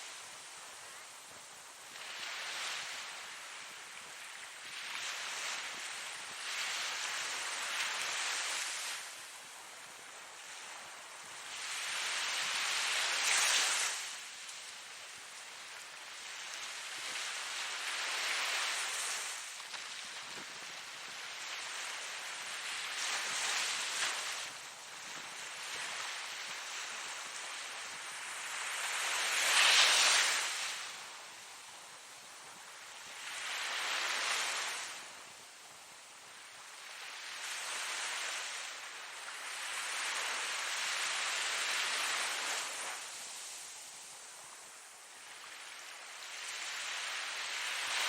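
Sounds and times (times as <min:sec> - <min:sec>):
ocean waves breaking on shore: 0:00.0 - 0:48.0.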